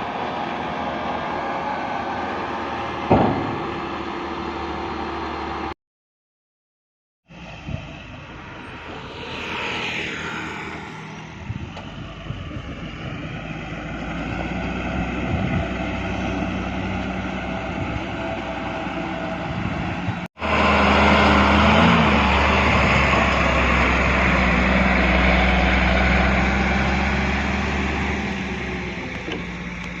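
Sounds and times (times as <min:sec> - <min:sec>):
falling whine: 0:07.3 - 0:13.4
heavy diesel engine running: 0:11.4 - 0:30.0.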